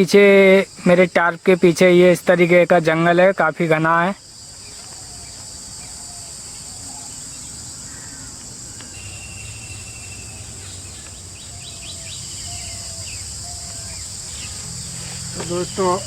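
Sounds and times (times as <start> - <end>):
insects chorus: 0.0 - 16.0
faint bird calls: 4.5 - 16.0.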